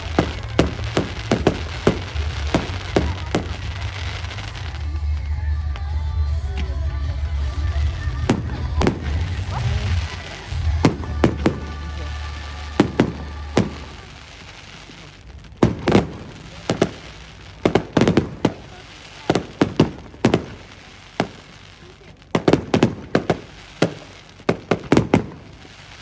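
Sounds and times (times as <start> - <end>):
music with heavy bass: 0.0 - 14.5
fireworks bangs: 0.0 - 26.0.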